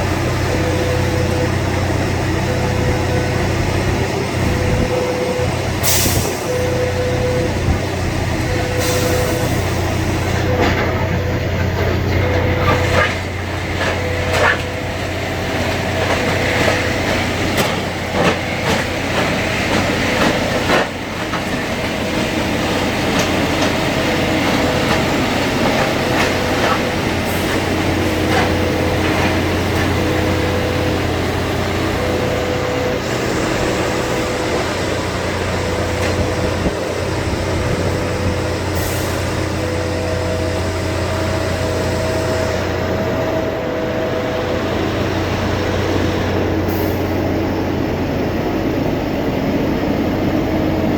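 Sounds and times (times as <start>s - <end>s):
diesel engine running: 0.0s - 50.9s
warning beeps: 0.4s - 7.8s, 10.3s - 15.1s.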